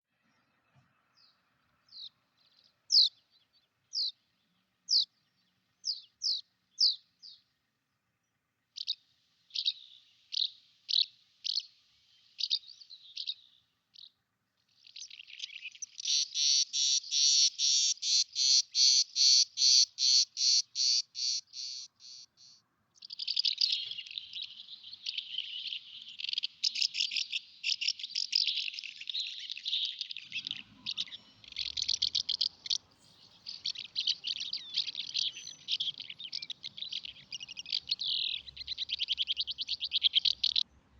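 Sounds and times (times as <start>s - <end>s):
songbirds singing: 0.1s - 40.9s
bird repeating notes: 16.0s - 22.6s.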